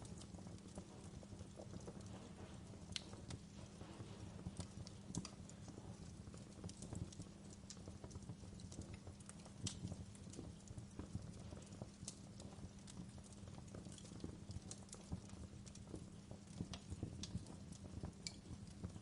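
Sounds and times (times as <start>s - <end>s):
fire crackling pops and snaps: 0.0s - 19.0s
fire low rumble: 0.0s - 19.0s.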